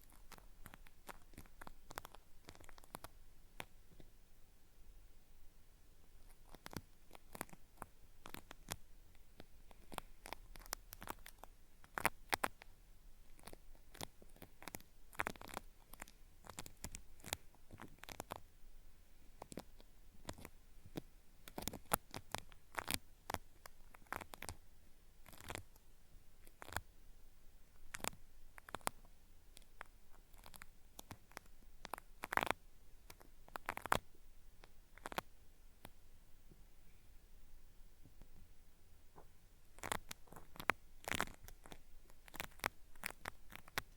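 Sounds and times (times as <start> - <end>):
cotton swab scraping microphone: 0.0 - 3.7, 39.2 - 43.9.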